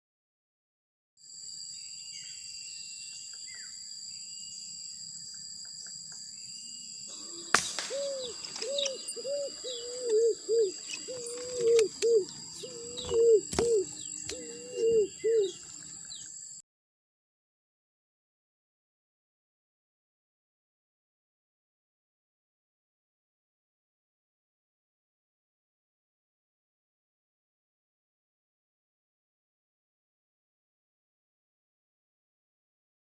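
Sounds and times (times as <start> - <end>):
insects buzzing: 1.2 - 16.6
small birds chirping: 5.3 - 16.6
dove cooing: 7.1 - 16.2.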